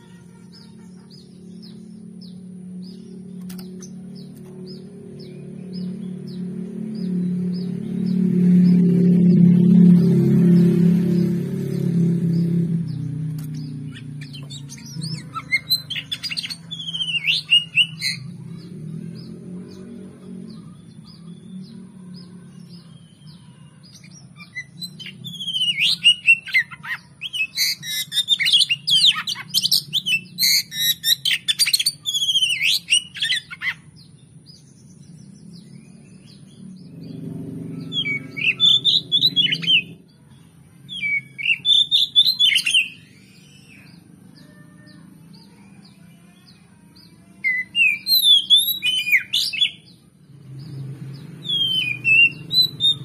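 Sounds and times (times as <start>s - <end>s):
bird singing whistled phrases: 13.9s - 18.2s, 24.1s - 33.8s, 40.9s - 43.9s, 47.5s - 49.9s, 51.4s - 53.0s.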